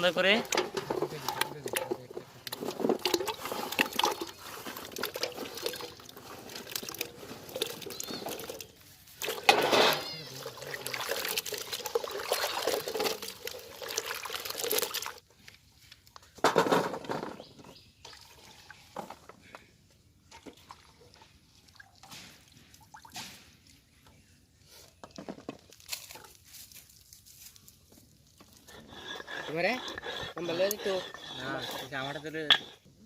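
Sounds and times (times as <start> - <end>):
water pouring and sloshing: 0.1 - 16.0, 18.0 - 19.2, 20.2 - 24.2
water splashing and dripping: 10.3 - 15.2, 20.3 - 23.8.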